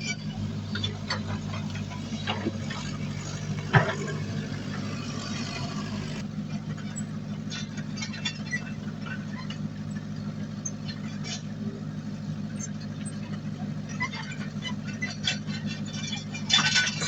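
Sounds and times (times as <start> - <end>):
heavy diesel engine running: 0.0 - 17.0
light metal clanks: 12.5 - 17.0.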